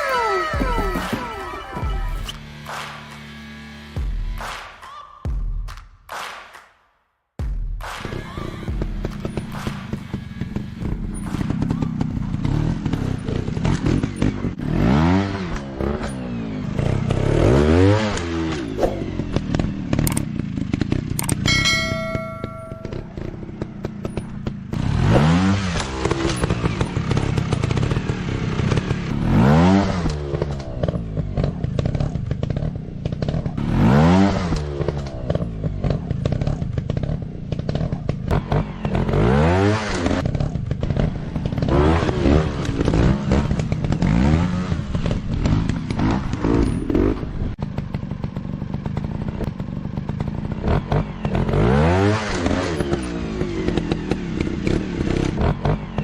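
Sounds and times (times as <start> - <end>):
motorcycle engines revving: 0.0 - 4.4, 8.0 - 56.0
ringing chime: 21.5 - 23.3.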